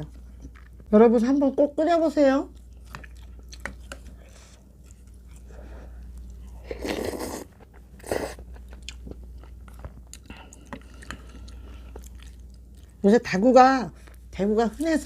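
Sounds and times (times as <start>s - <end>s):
chewing and crunching food: 0.0s - 0.9s, 2.4s - 13.2s.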